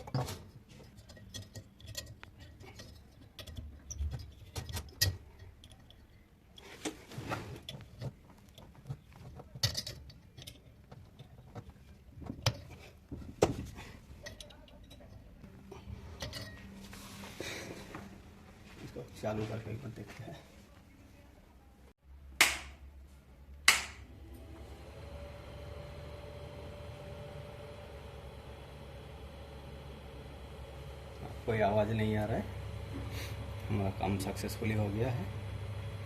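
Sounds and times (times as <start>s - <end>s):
metal parts clicking and tapping: 0.0s - 7.0s, 7.6s - 15.5s.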